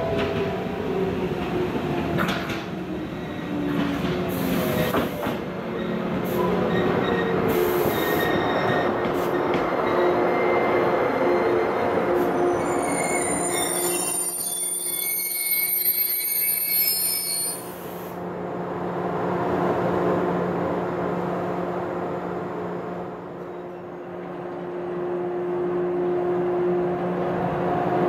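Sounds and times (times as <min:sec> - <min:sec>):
wheel and brake squeals: 0:05.8 - 0:11.6, 0:12.2 - 0:17.9.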